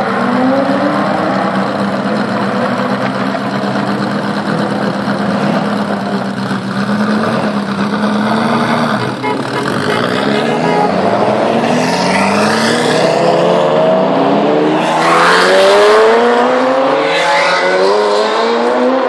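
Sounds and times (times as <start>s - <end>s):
car engine idling: 0.0s - 12.6s.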